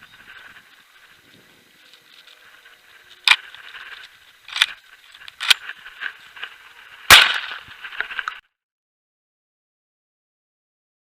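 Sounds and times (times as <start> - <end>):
shotgun shots: 7.1 - 7.6.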